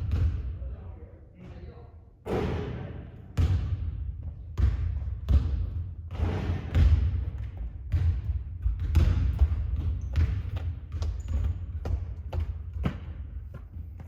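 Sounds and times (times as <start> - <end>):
basketball bouncing on hard court: 0.0 - 0.6, 3.4 - 14.0.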